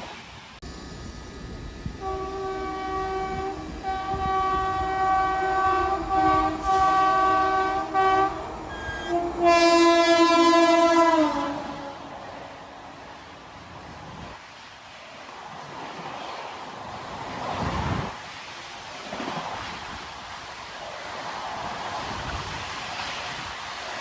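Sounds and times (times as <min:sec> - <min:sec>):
train rumbling: 0:00.0 - 0:24.0
train horn blasts: 0:02.0 - 0:12.8.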